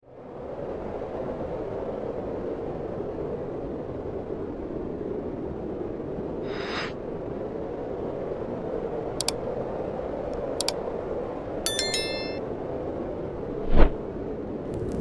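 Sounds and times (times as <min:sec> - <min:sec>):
snowstorm wind rushing: 0:13.5 - 0:14.0
fireplace crackles: 0:14.7 - 0:15.0.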